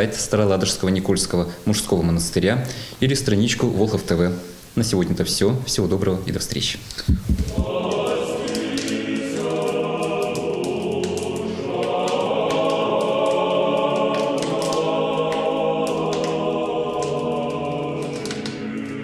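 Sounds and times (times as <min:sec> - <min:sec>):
choir singing sustained chords: 0:07.5 - 0:19.0.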